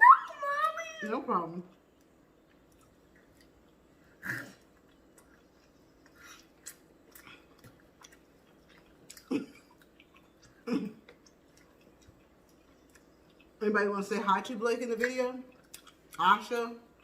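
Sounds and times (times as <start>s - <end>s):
person chewing steak: 1.7s - 13.6s, 15.5s - 16.2s.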